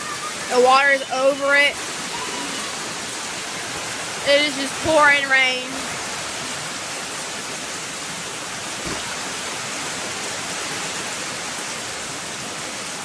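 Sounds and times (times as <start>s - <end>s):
heavy rain pouring: 0.0s - 13.0s
faint low thump: 8.8s - 9.3s.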